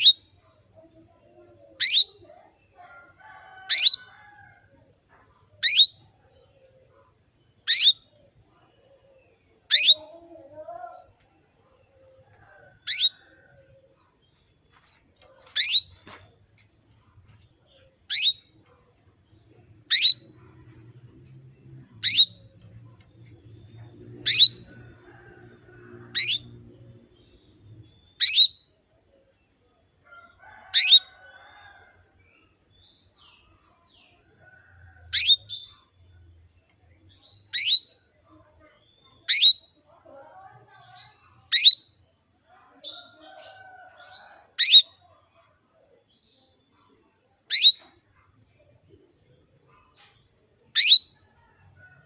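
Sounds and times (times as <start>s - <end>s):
canary chirping: 1.7s - 4.3s, 5.6s - 6.6s, 7.6s - 8.1s, 9.6s - 13.5s, 15.2s - 16.1s, 17.2s - 18.7s, 19.4s - 27.2s, 27.8s - 28.6s, 34.5s - 35.9s, 37.2s - 38.0s, 39.2s - 39.7s, 44.2s - 45.0s, 47.5s - 47.9s, 50.6s - 51.1s.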